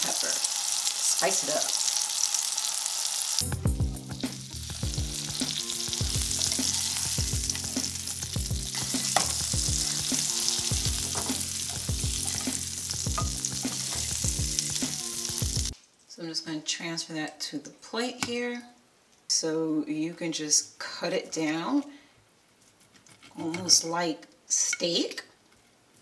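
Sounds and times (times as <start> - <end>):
fish sizzling in a pan: 0.0 - 15.8
electronic music with beat: 3.4 - 15.8.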